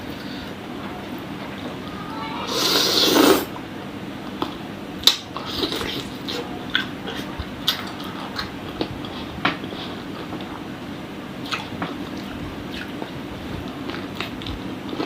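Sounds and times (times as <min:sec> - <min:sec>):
chewing and gnawing: 0:11.4 - 0:15.0.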